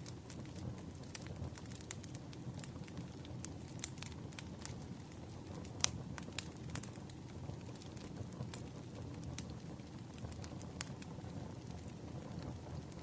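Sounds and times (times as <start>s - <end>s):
fire low rumble: 0.0s - 13.0s
firewood crackling and popping: 0.0s - 13.0s.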